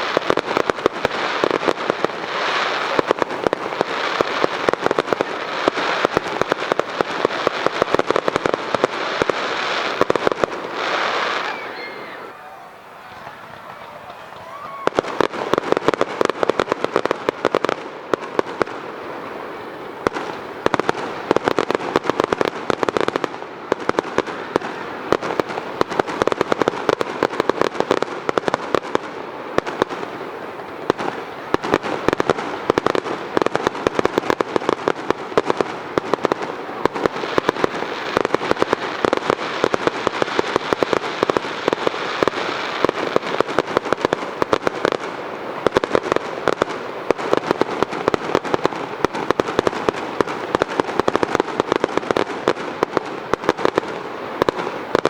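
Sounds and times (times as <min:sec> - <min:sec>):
fireworks crackling and banging: 0:00.0 - 0:55.0.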